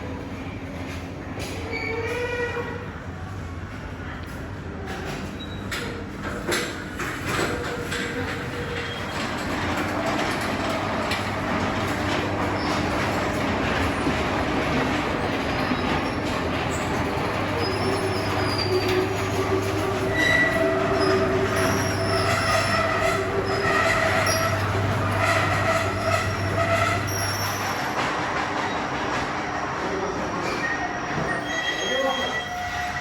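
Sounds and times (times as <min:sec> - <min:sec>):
train rumbling on rails: 0:00.0 - 0:33.0
high squealing wheels: 0:06.6 - 0:33.0.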